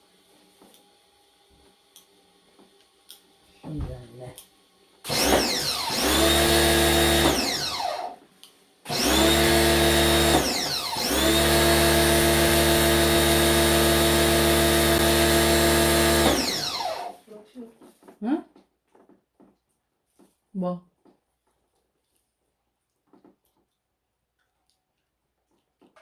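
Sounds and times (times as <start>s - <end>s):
electric motor machine humming: 5.1s - 8.2s, 8.9s - 17.2s.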